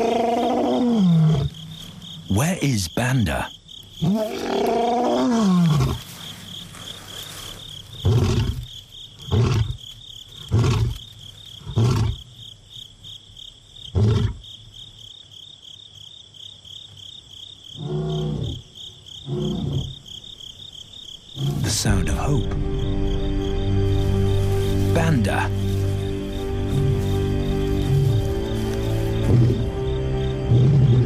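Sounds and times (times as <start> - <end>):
lion roaring: 0.0 - 1.6, 4.0 - 6.0
crickets chirping: 0.0 - 31.0.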